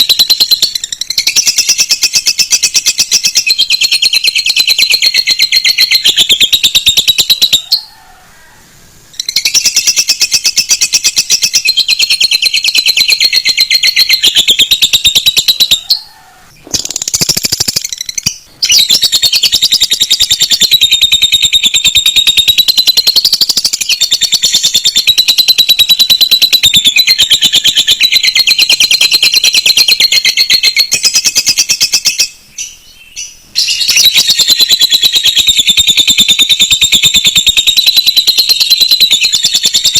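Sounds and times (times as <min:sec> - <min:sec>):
birds trilling and chattering: 0:00.0 - 0:39.9.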